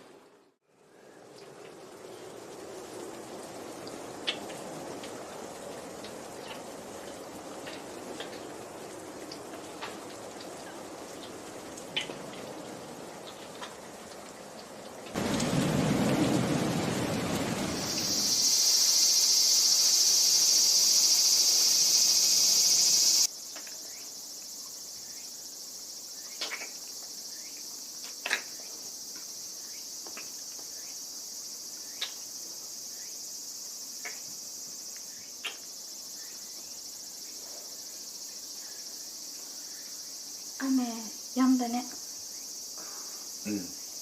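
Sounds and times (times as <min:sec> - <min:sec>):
insects chirring: 0:00.7 - 0:44.0.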